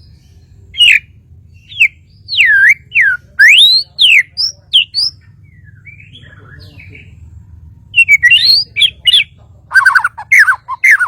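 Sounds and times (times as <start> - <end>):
bird singing whistled notes: 0.0 - 7.1, 7.9 - 11.0.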